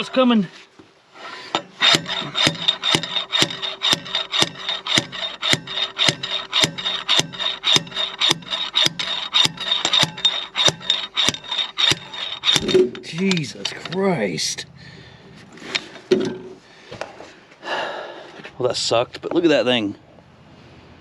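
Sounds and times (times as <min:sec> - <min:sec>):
hammer striking metal: 0:01.6 - 0:14.0.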